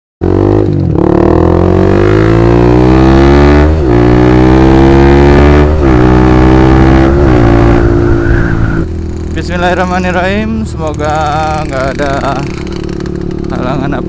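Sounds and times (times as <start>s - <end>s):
motorcycle engine accelerating: 0.2s - 14.0s.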